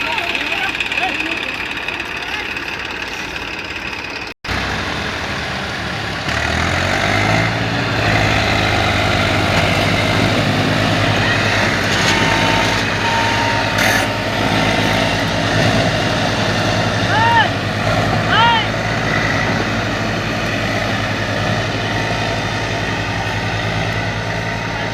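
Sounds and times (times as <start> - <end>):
tractor diesel engine revving: 0.0 - 24.9.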